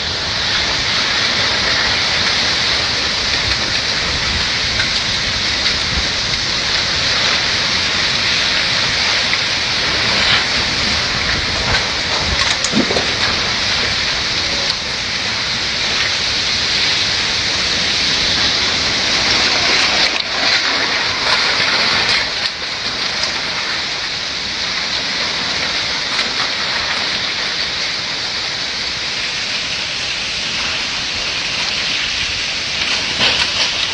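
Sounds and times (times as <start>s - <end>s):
heavy rain pouring: 0.0s - 33.9s
wind gusts rumbling: 0.0s - 33.9s.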